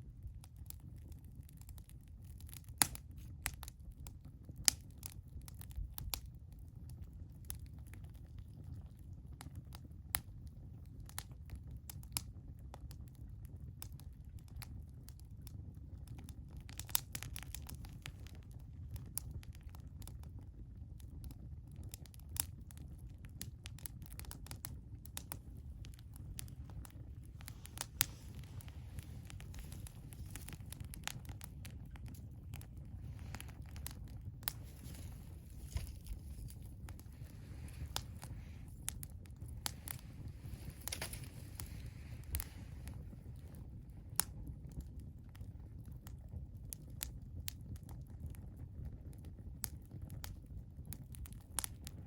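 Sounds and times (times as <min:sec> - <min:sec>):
wood fire crackling: 0:00.0 - 0:52.0
sharp pops and snaps: 0:16.0 - 0:20.3, 0:22.0 - 0:44.4
low rumble: 0:25.6 - 0:43.5
soft hiss: 0:25.7 - 0:43.7.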